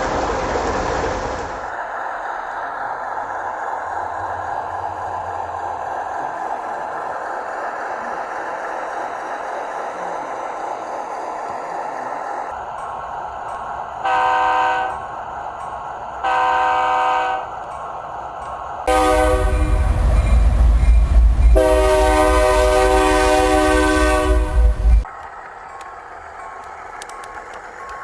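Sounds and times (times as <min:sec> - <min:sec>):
locomotive air horn blasts: 0:14.0 - 0:15.0, 0:16.2 - 0:17.5, 0:18.9 - 0:19.9, 0:21.6 - 0:25.0
deep rumble: 0:19.3 - 0:21.6.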